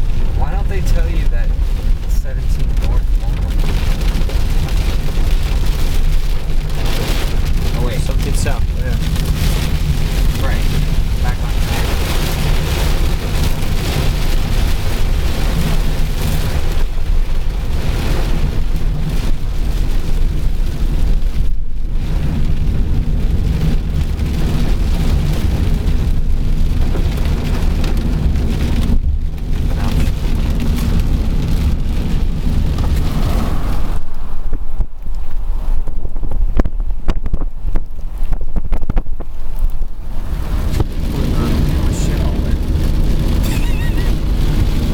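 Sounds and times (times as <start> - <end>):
car and tyres on wet road: 0.0 - 44.9
heavy rain beating on car: 0.0 - 44.9.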